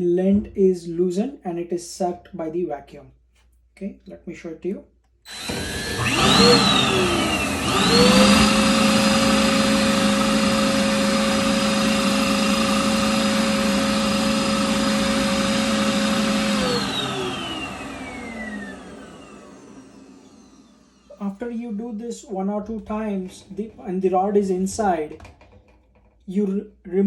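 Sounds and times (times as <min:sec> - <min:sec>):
power drill whining: 0:05.3 - 0:21.3
vacuum cleaner sucking: 0:05.3 - 0:25.5.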